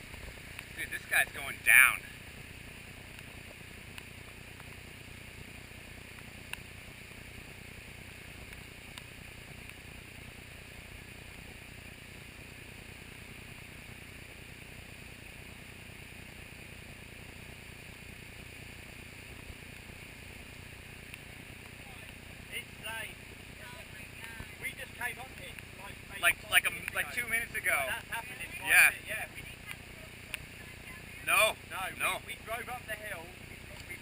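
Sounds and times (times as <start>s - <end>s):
floodwater rushing through culvert: 0.0s - 34.0s
faint clicks: 2.9s - 4.8s, 6.0s - 7.2s, 8.4s - 9.8s, 26.5s - 27.2s, 29.6s - 31.0s, 33.4s - 34.0s.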